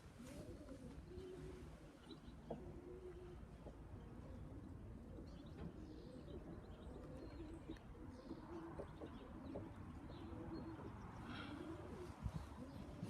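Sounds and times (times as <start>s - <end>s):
pigeons cooing: 0.1s - 13.0s.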